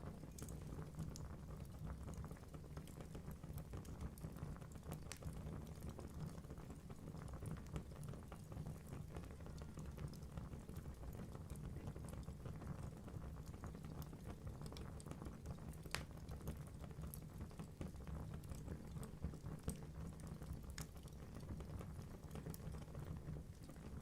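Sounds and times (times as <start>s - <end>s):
logs crackling and popping: 0.1s - 6.8s, 13.4s - 24.0s.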